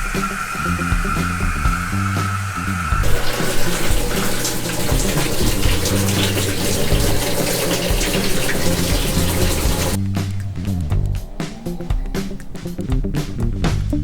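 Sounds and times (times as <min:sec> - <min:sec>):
water pouring into washing machine: 0:00.0 - 0:10.0
background music: 0:00.0 - 0:14.0.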